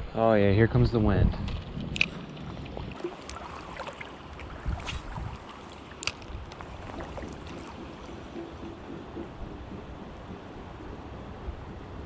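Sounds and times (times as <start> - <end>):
wind on microphone: 0.0 - 3.8, 4.4 - 12.0
creek rushing: 2.0 - 10.2.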